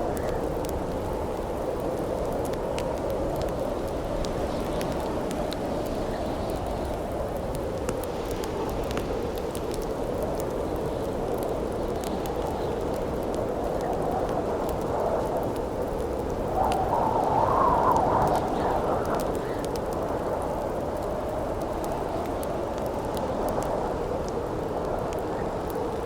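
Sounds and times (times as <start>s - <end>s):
campfire crackling: 0.0s - 26.0s
wind gusting: 12.7s - 26.0s.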